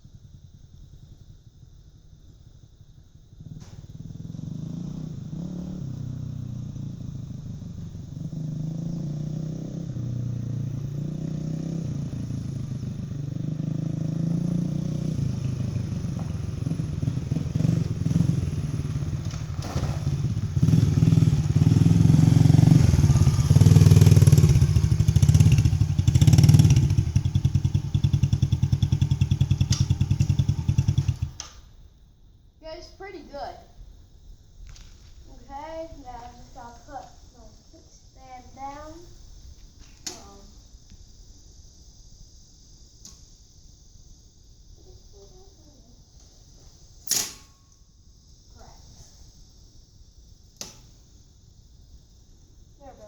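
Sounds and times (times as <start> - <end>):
dirt bike engine revving: 3.4 - 31.4.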